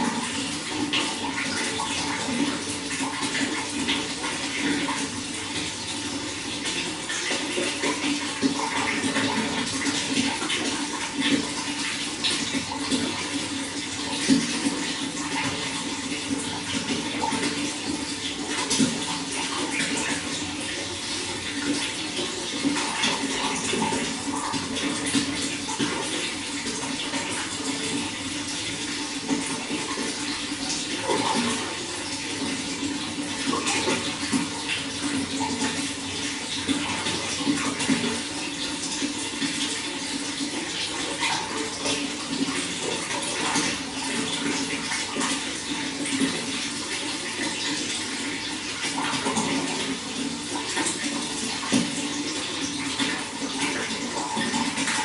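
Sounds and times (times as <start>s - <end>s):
running water splashing: 0.0s - 55.0s.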